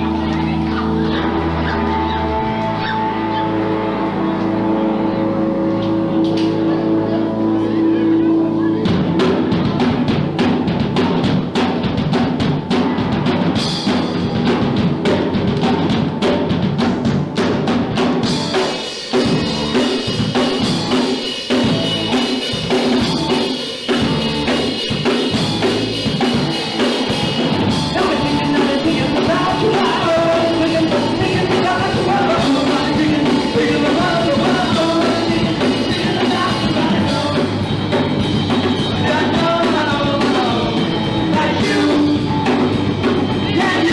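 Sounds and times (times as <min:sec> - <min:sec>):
shouted vocals: 0:00.0 - 0:10.1, 0:26.6 - 0:43.9
distorted guitars: 0:00.0 - 0:43.9.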